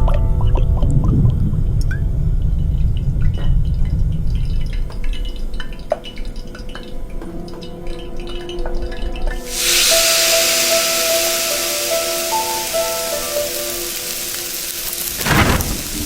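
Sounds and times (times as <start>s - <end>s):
low rumble: 0.0s - 4.8s
water drops dripping: 0.1s - 14.5s.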